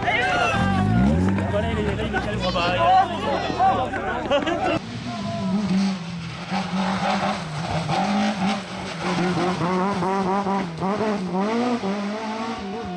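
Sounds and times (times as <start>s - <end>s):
tyre noise: 0.0s - 4.8s
rally car engine revving: 0.0s - 12.9s.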